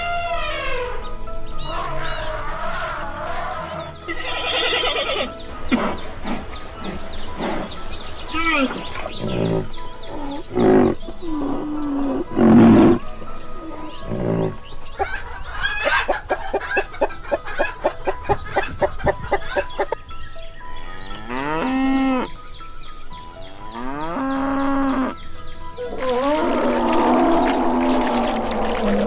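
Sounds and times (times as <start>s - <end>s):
soft background music: 0.0s - 29.0s
loud animal calls: 1.7s - 20.0s
hens clucking: 3.6s - 20.0s
cow mooing: 8.3s - 14.8s, 20.8s - 22.4s, 23.7s - 25.2s.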